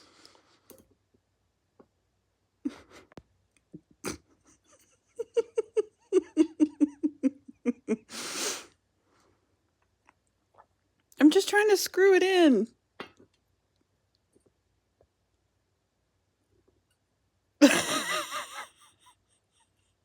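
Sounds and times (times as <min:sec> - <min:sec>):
person laughing: 0:02.7 - 0:03.1, 0:04.0 - 0:08.2, 0:17.6 - 0:19.1.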